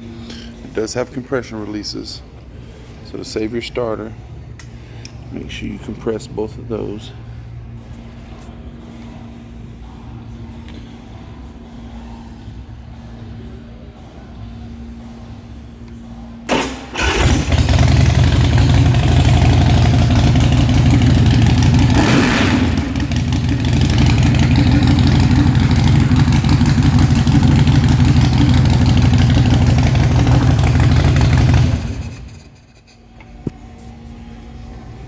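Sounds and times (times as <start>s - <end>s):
starter motor cranking: 16.5s - 32.5s
motorcycle engine idling: 16.5s - 32.6s.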